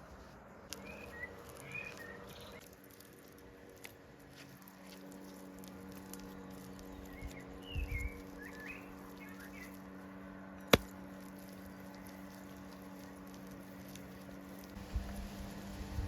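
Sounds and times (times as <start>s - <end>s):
soft patter: 0.0s - 16.0s
bird chirps: 0.7s - 2.6s, 6.8s - 9.8s
low steady hum: 5.4s - 16.0s.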